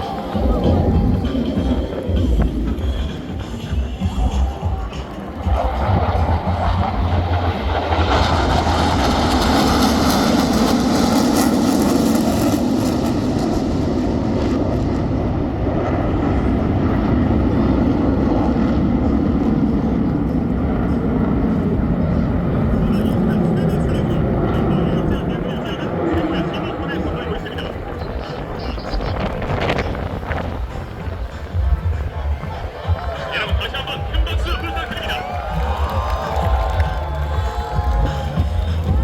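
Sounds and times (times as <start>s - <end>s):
jets flying past: 0.0s - 39.0s.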